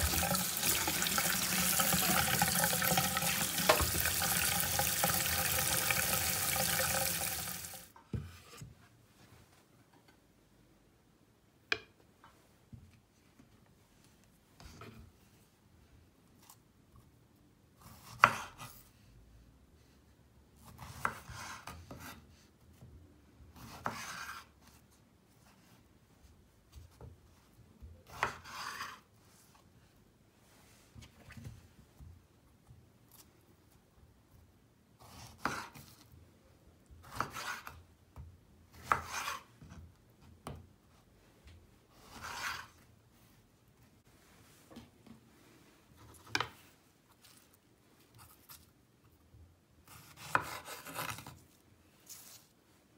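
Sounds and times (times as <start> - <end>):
knife cutting on cutting board: 23.6 - 24.5, 28.0 - 29.0, 35.0 - 36.0, 37.0 - 37.8, 38.7 - 39.8, 41.9 - 42.8, 49.9 - 51.4.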